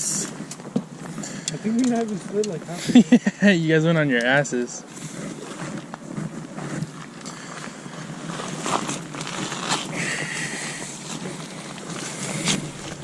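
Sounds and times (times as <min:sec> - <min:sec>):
shoes scraping on gravel: 0:04.4 - 0:13.0.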